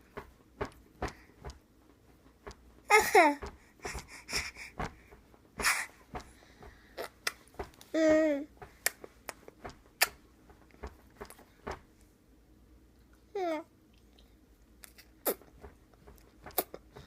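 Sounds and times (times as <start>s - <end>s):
sharp clicks and smacks: 0.1s - 7.9s, 8.6s - 11.8s, 14.8s - 17.0s.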